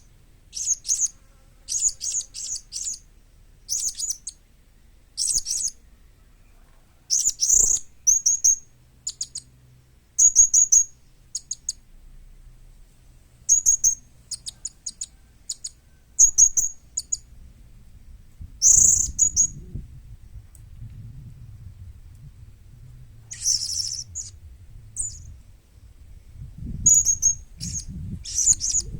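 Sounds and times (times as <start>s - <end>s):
parrot chirping in rapid bursts: 0.5s - 1.1s, 1.7s - 3.0s, 3.7s - 4.4s, 7.1s - 9.4s, 13.5s - 17.2s, 18.6s - 19.5s, 23.3s - 24.4s, 26.9s - 28.9s.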